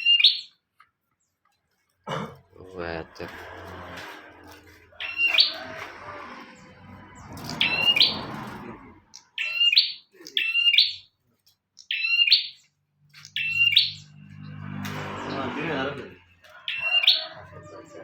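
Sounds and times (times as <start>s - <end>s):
bird chirping: 0.0s - 1.5s, 5.0s - 15.5s, 16.4s - 18.0s.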